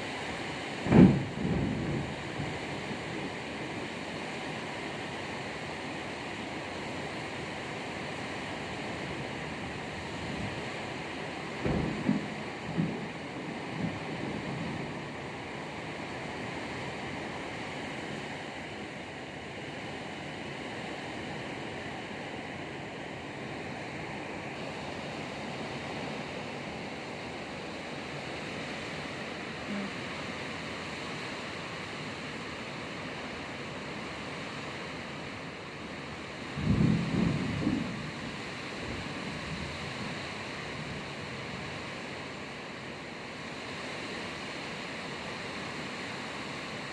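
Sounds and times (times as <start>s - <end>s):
heavy rain pouring: 0.0s - 46.9s.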